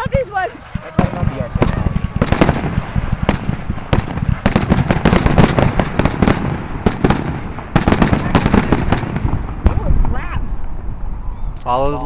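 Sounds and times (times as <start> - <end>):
fireworks banging and crackling: 0.0 - 10.3.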